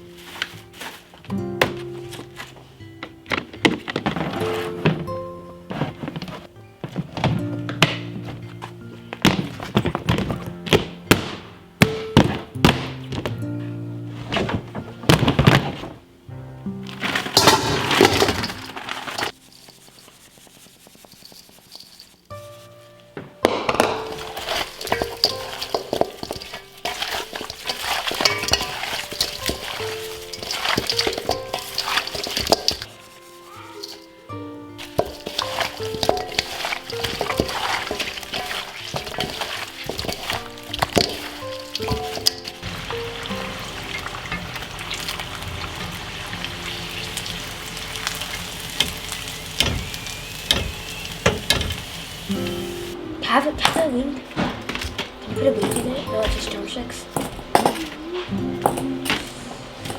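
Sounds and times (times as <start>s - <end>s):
utensils and dishes clinking: 0.0s - 11.0s, 16.8s - 22.6s, 23.2s - 59.9s
steady sizzling hiss: 0.0s - 59.9s.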